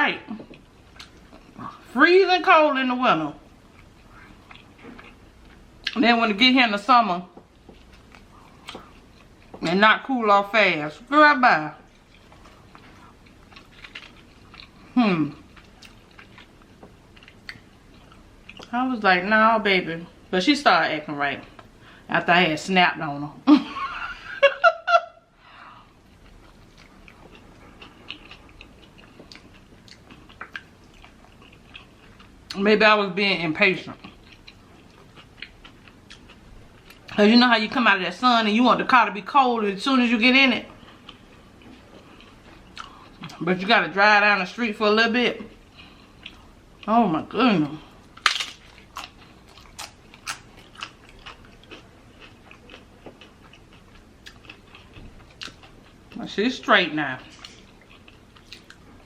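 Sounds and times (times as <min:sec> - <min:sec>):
person chewing food: 0:00.4 - 0:01.9, 0:03.4 - 0:06.0, 0:07.4 - 0:09.7, 0:11.8 - 0:18.7, 0:25.7 - 0:32.6, 0:34.0 - 0:37.2, 0:40.7 - 0:43.4, 0:45.5 - 0:46.9, 0:47.6 - 0:56.2, 0:57.3 - 0:59.0.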